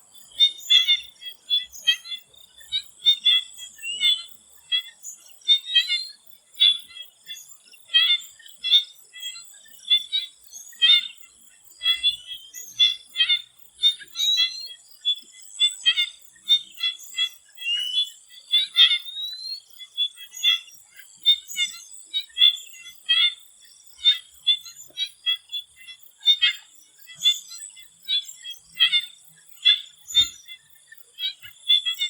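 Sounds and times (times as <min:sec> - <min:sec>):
frogs chirping in chorus: 0:00.0 - 0:32.0.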